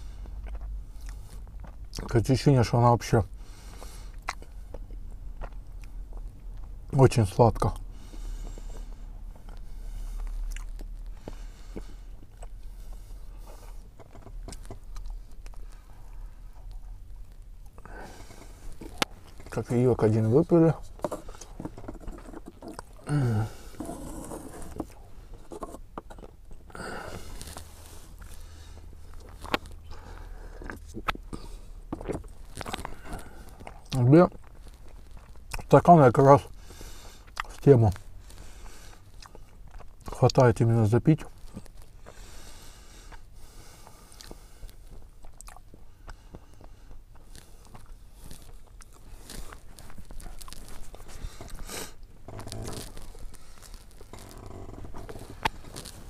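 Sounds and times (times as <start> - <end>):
pastry chewing: 0.0 - 2.1, 3.8 - 6.8, 7.6 - 40.5, 41.1 - 56.0
wet chewing smacks: 10.2 - 13.0, 43.8 - 54.4.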